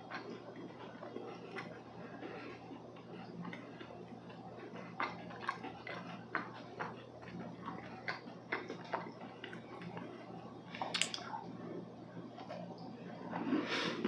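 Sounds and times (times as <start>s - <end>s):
chewing with wet mouth clicks: 0.0s - 10.1s.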